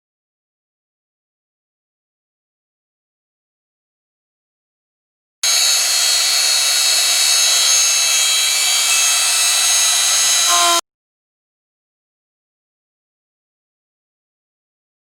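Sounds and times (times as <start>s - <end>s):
power tool whining: 5.4s - 10.8s.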